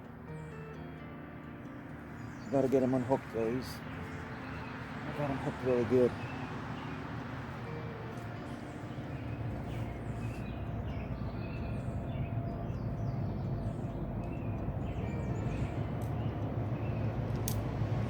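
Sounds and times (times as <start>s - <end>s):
low rumble: 9.1s - 18.0s.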